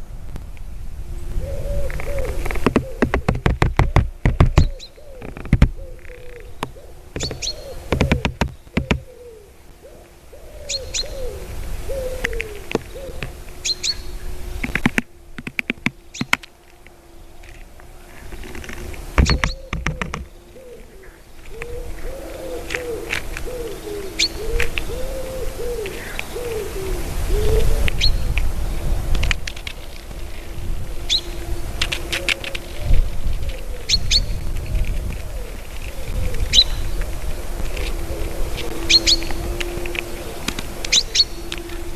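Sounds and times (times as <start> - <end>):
small birds chirping: 1.2 - 28.5, 31.0 - 41.9
woodpeckers pecking: 1.8 - 9.9, 11.9 - 26.7, 34.9 - 41.9
low wavering notes: 29.9 - 41.9.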